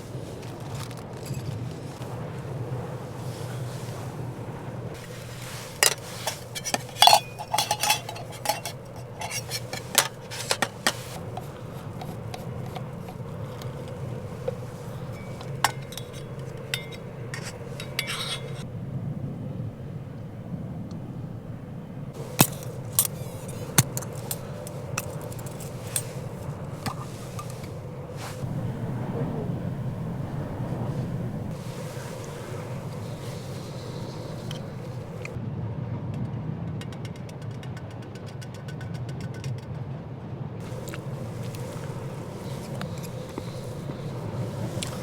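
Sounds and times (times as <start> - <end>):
low background rumble: 1.2 - 36.8
metal cookware clinking: 5.0 - 18.7, 22.2 - 28.6, 30.9 - 35.4, 40.6 - 45.0.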